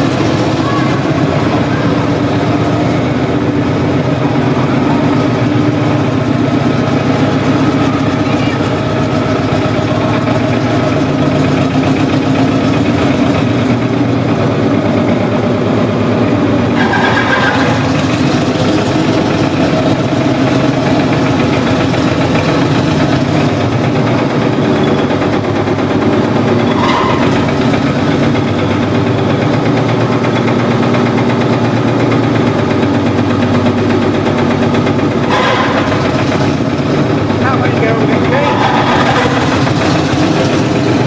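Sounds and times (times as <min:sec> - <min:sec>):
tractor engine running: 0:00.0 - 0:41.0.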